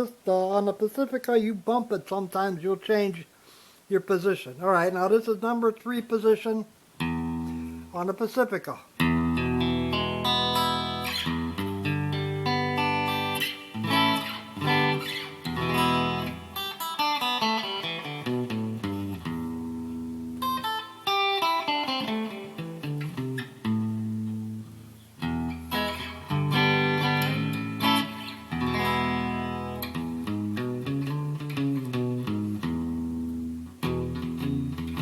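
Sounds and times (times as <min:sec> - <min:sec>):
electric guitar through amplifier: 0:07.0 - 0:08.0, 0:09.0 - 0:35.0.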